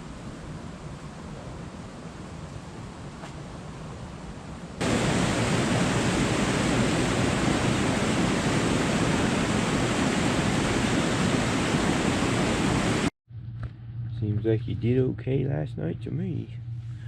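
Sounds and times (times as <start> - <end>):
loud steady rushing noise: 4.8 - 13.1.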